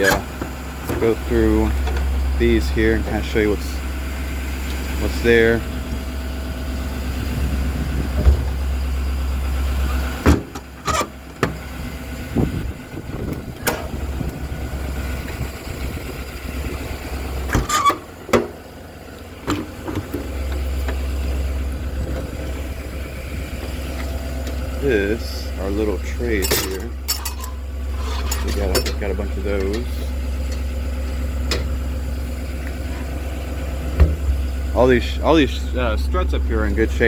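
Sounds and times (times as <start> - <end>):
truck compartment doors clunking: 0.0 - 2.3, 7.8 - 8.8, 9.9 - 11.8, 13.2 - 14.4, 17.4 - 18.6, 32.6 - 34.5
diesel truck idling: 0.0 - 37.0.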